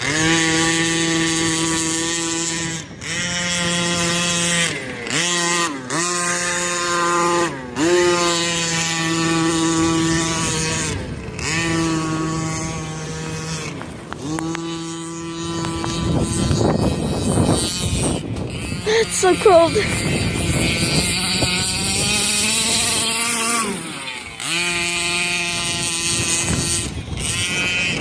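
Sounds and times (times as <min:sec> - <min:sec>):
two-stroke engine revving: 0:00.0 - 0:28.0.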